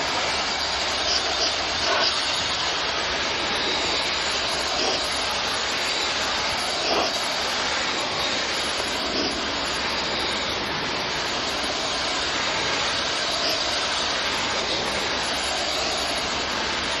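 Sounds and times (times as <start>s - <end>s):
water spray hissing: 0.0s - 17.0s.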